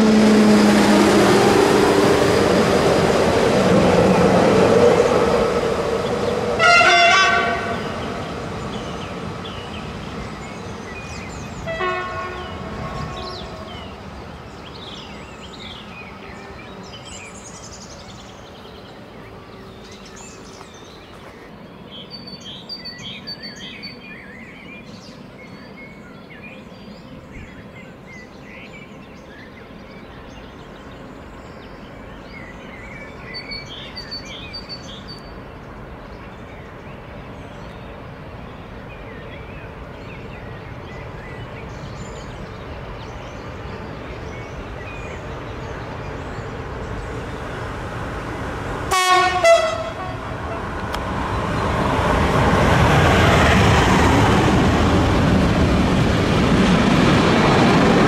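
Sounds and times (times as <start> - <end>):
train horn: 0.0 - 2.7, 4.5 - 8.0, 11.6 - 13.8, 48.9 - 50.8
train rumble: 0.0 - 58.0
birds chirping: 2.7 - 57.9.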